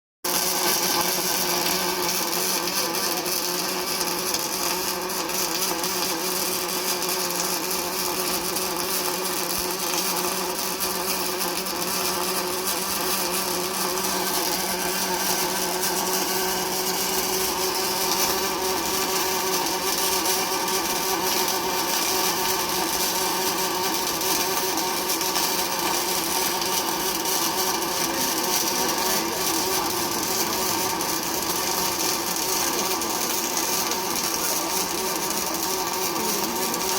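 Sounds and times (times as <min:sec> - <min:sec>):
welding hiss: 0:00.3 - 0:36.9
machine hum: 0:22.7 - 0:36.9.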